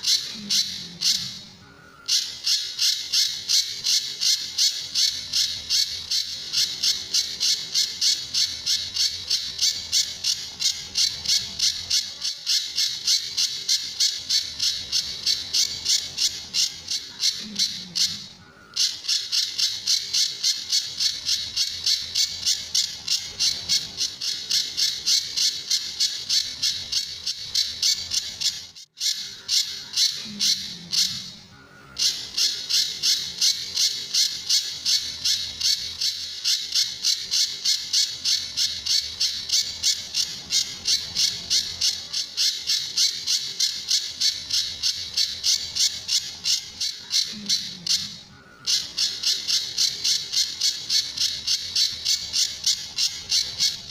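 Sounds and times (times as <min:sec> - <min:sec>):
songbird harsh rasping calls: 0:00.0 - 0:53.9.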